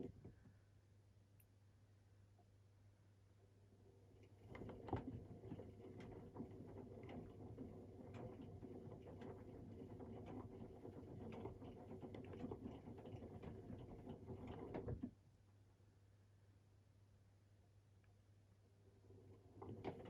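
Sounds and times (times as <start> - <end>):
washing machine motor hum: 3.9 - 15.2, 18.8 - 20.0
wet laundry tumbling in washing machine: 4.2 - 15.2, 19.2 - 20.0.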